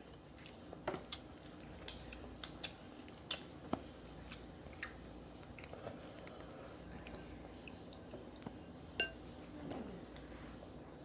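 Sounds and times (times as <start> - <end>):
quiet chewing: 0.0 - 8.6.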